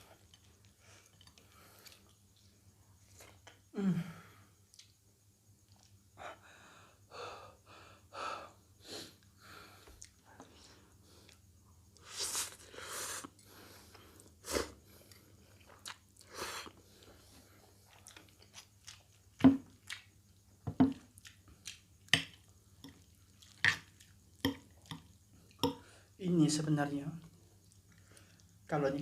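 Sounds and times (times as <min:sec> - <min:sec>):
person chewing noodles: 0:00.1 - 0:03.5, 0:05.6 - 0:06.0, 0:09.9 - 0:25.9, 0:27.2 - 0:28.7.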